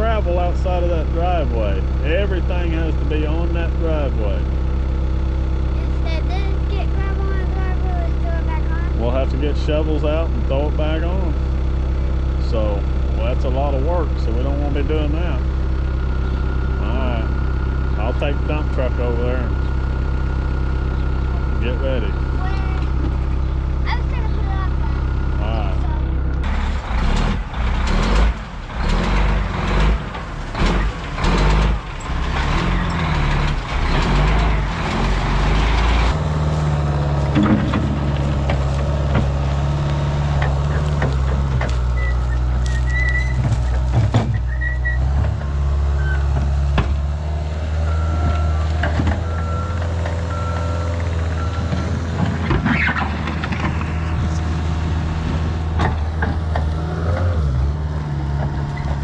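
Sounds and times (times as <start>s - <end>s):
diesel truck engine running: 0.0s - 59.0s
backup alarm beeping: 49.2s - 52.0s.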